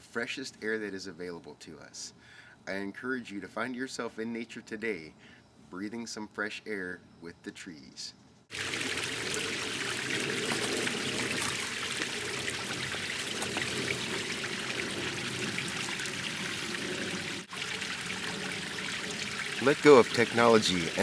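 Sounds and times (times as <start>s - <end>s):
stream babbling over rocks: 8.5s - 21.0s.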